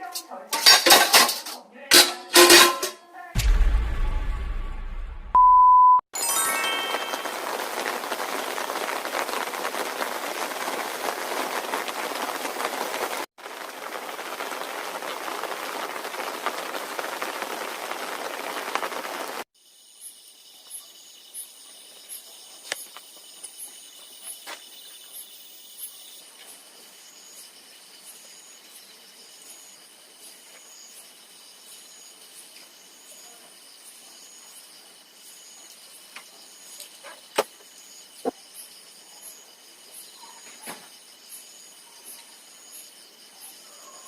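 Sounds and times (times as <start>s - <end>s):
crickets chirping: 13.5s - 44.0s
high-pitched insect chorus: 18.4s - 44.0s.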